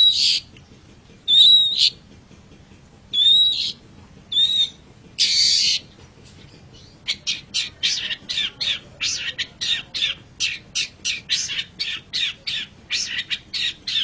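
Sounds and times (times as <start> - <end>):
bird harsh chattering: 0.0 - 0.5, 1.3 - 2.0, 3.1 - 14.0
bird harsh scratchy calls: 3.2 - 5.9, 6.8 - 14.0.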